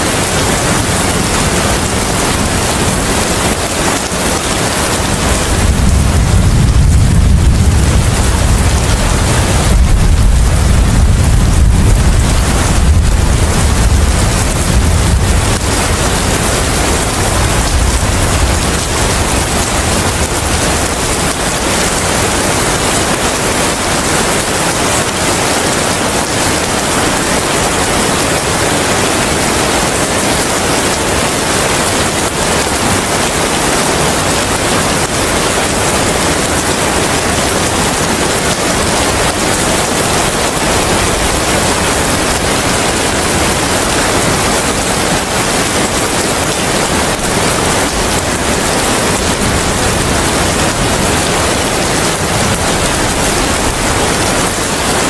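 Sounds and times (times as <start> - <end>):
heavy rain: 0.0 - 55.0
low rumble: 5.5 - 21.3.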